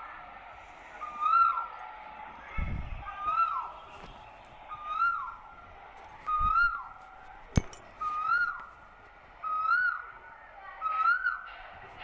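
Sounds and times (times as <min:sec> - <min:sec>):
bird calling: 0:04.6 - 0:05.4, 0:08.0 - 0:08.8, 0:09.4 - 0:11.6.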